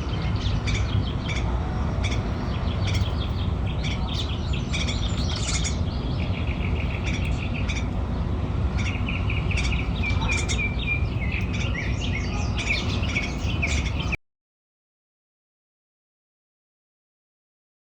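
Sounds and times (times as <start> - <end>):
low background rumble: 0.0 - 14.2
small birds chirping: 0.0 - 14.2.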